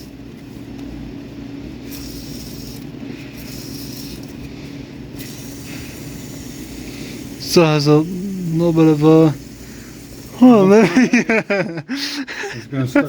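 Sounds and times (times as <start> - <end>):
steady low hum: 0.0 - 13.0
air and cleaner hissing through lines: 1.8 - 12.7.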